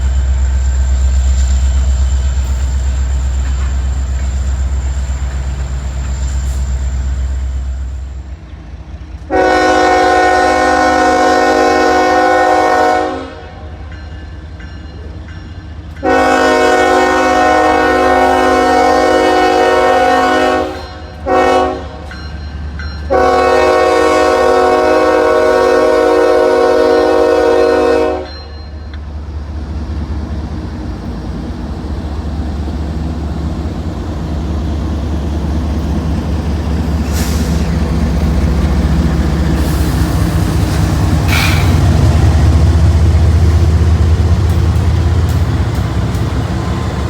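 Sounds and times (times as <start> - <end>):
low rumble of train: 0.0 - 47.0
locomotive air horn blasts: 9.3 - 13.8, 16.0 - 22.1, 23.1 - 28.5.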